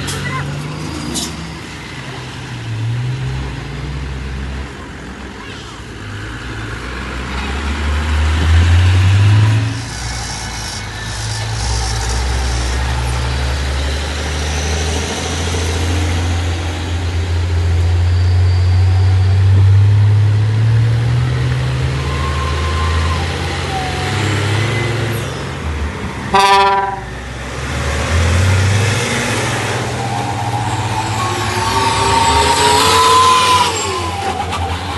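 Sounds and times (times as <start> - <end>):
truck engine under load: 6.0 - 34.9
truck horn toot: 26.3 - 27.2.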